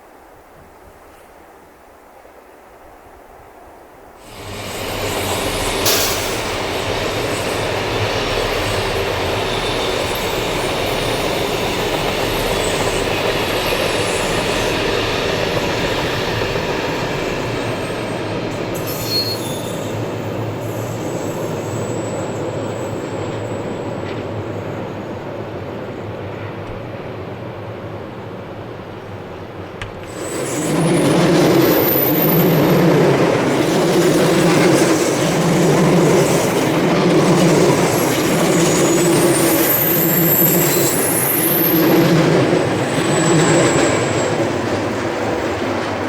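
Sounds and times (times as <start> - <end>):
train rumbling over track: 4.1 - 46.0
faint wheel squeal: 18.8 - 23.6.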